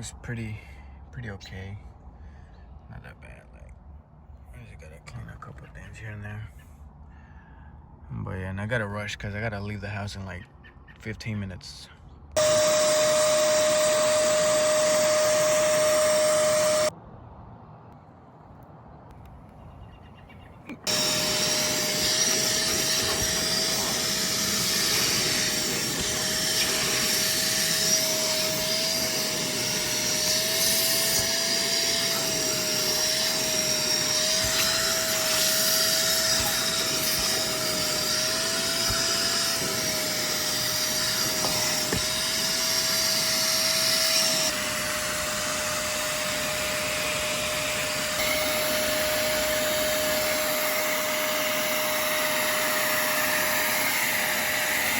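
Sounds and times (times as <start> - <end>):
spot cleaner suction motor whine: 12.4 - 16.9, 20.7 - 54.9.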